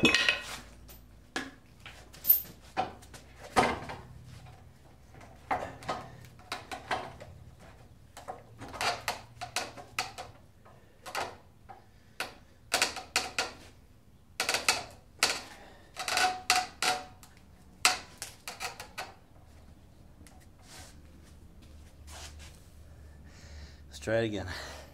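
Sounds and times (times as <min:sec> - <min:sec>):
hard objects knocking and clattering: 0:00.0 - 0:00.6.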